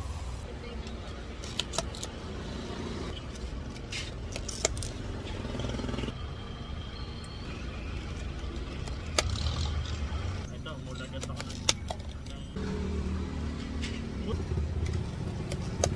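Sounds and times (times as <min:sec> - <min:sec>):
street traffic rumble: 0:00.0 - 0:15.9.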